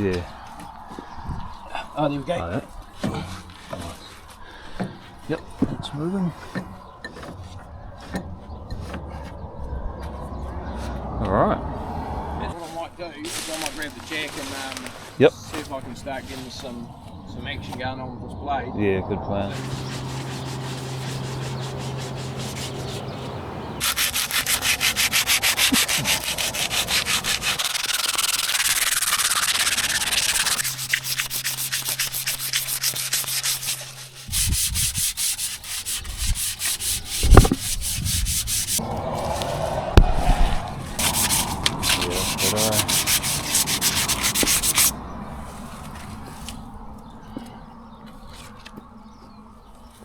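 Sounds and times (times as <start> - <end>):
steady low hum: 16.8 - 35.0
rhythmic rasping strokes: 19.5 - 45.0.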